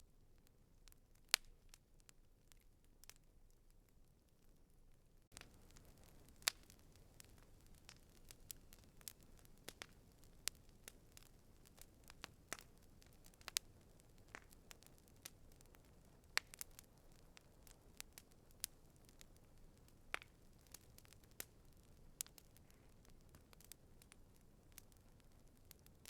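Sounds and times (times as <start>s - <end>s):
campfire crackling and popping: 0.4s - 4.5s, 5.2s - 26.0s
faint fire hiss: 5.2s - 26.0s.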